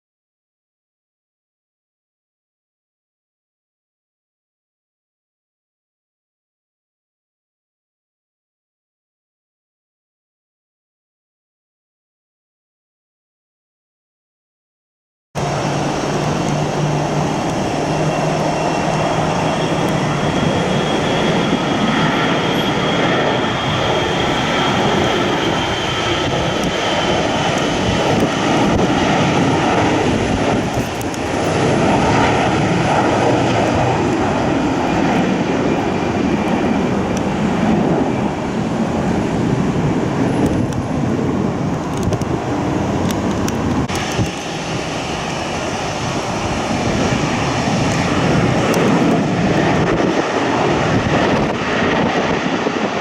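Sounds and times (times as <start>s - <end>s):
faint high engine whine: 15.4s - 49.3s
jet airliner engines: 15.4s - 53.0s.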